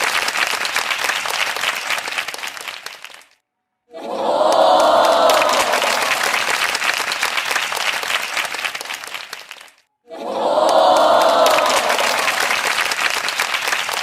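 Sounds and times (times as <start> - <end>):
crowd clapping and cheering: 0.0 - 3.4, 4.0 - 14.0
many voices shouting together: 3.9 - 6.5, 10.1 - 12.8.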